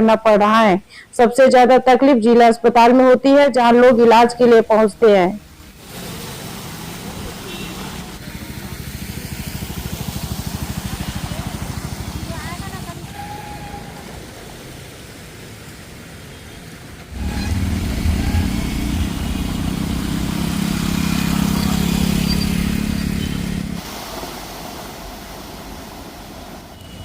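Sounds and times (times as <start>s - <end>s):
vehicle engine running: 5.8s - 13.1s, 17.1s - 23.8s.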